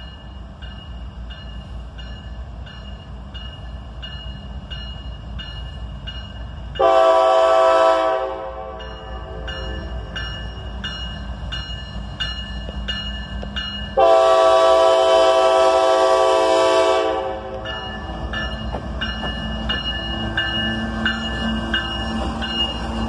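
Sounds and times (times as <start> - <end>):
crossing bell dinging: 0.0 - 23.0
locomotive air horn blast: 6.8 - 9.5, 14.0 - 17.6.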